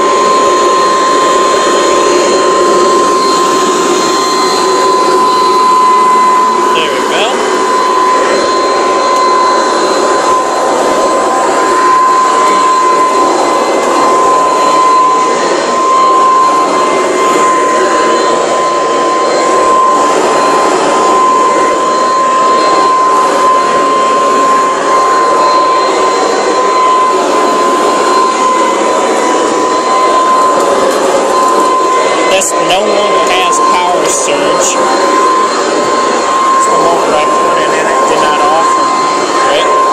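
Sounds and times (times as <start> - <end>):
vacuum cleaner motor whining: 0.0 - 39.9.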